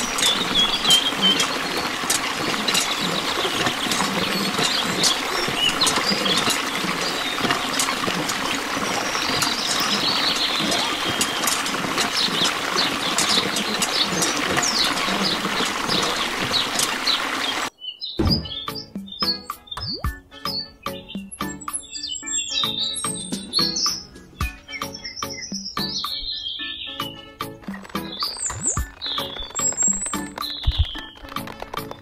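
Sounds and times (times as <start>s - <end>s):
water drips: 0.0s - 17.7s, 19.8s - 20.2s
water stream splashing into pool: 0.0s - 17.7s.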